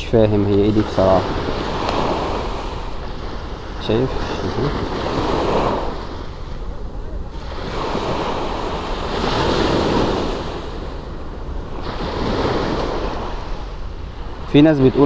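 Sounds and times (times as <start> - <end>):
sea waves washing on shore: 0.0 - 15.0
wind rumbling on microphone: 0.0 - 15.0.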